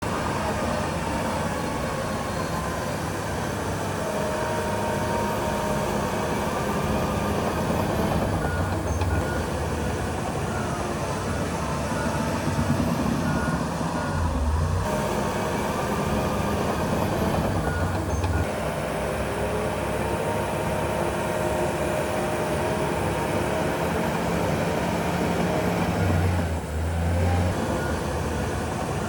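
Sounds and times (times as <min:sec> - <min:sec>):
heavy diesel machinery rumbling: 0:00.0 - 0:29.0
reversing alarm beeping: 0:00.4 - 0:18.8.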